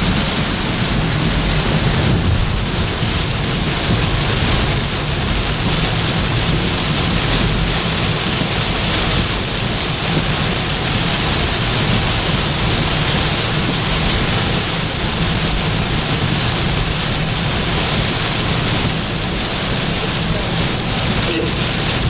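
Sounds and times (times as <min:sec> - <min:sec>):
heavy rain on a vehicle: 0:00.0 - 0:22.0.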